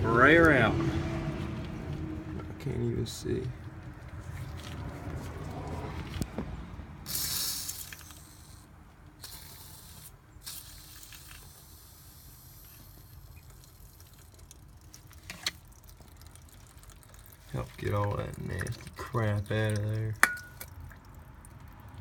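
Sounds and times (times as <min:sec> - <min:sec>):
aerosol can spraying: 0:07.1 - 0:08.6, 0:09.2 - 0:13.1.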